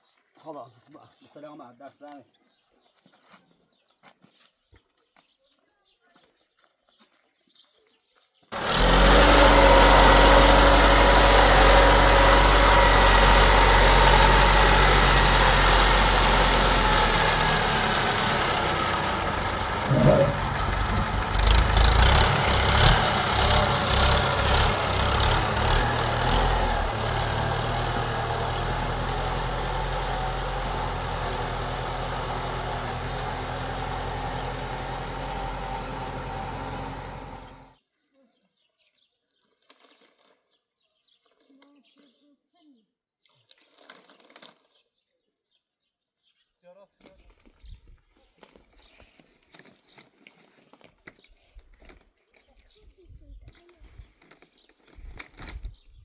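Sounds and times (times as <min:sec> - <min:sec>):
engine running loudly: 0:08.5 - 0:37.7.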